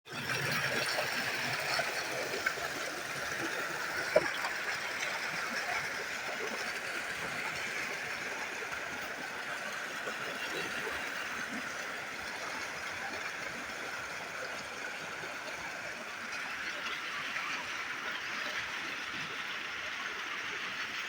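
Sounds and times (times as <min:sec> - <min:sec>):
running water rushing: 0:00.1 - 0:21.0.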